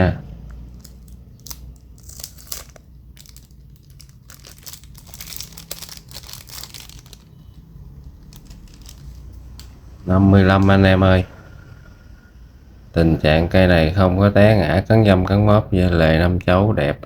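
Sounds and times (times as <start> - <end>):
wrapping crinkling and rustling: 0.5 - 9.8.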